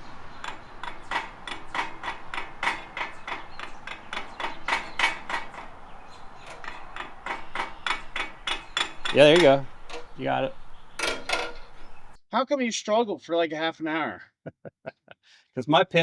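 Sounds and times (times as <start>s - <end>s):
hammer blows on metal: 0.0s - 12.2s.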